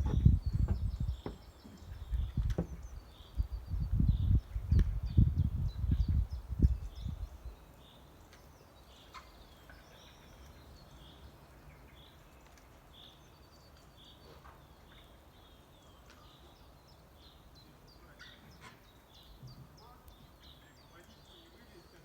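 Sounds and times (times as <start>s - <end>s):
low rumbling microphone noise: 0.0s - 7.6s.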